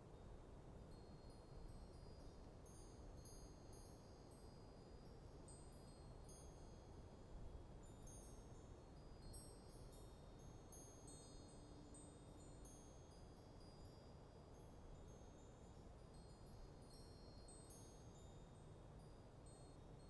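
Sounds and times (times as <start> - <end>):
wind chimes tinkling: 7.8 - 20.0.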